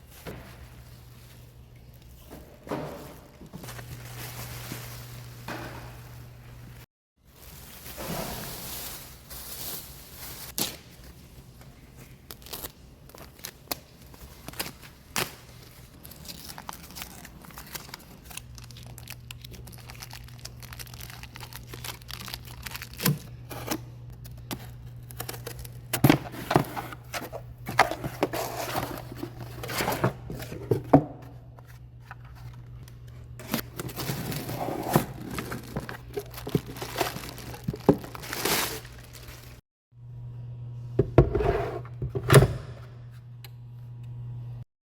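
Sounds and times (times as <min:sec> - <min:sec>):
cardboard tearing and crinkling: 0:14.3 - 0:23.2, 0:33.4 - 0:39.6.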